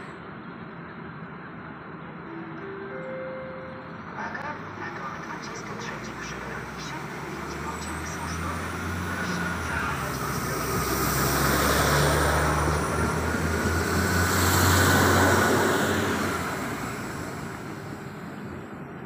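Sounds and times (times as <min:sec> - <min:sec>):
electric train running on rails: 0:00.0 - 0:19.0
faint train whine: 0:00.0 - 0:19.0.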